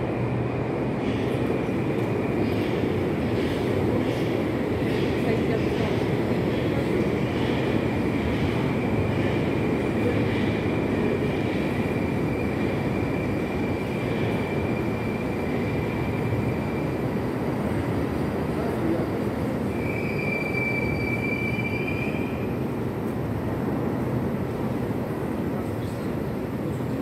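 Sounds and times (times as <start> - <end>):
electric train rumble on rails: 0.0 - 27.0
high wheel squeal: 19.7 - 22.4.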